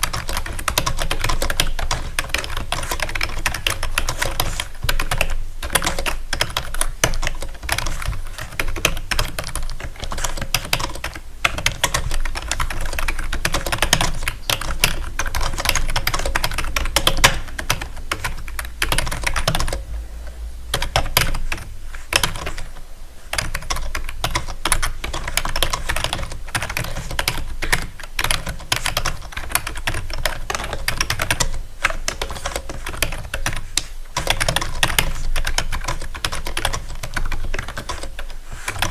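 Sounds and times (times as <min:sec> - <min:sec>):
low hum: 0:18.4 - 0:23.4.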